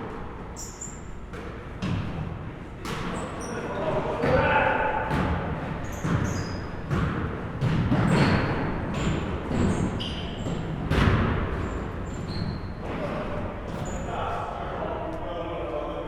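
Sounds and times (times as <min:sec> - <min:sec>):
shoe squeaks: 0:00.4 - 0:01.3, 0:03.0 - 0:04.0, 0:05.8 - 0:06.9, 0:08.0 - 0:10.8, 0:11.6 - 0:14.3
basketballs bouncing on gym floor: 0:00.6 - 0:14.2.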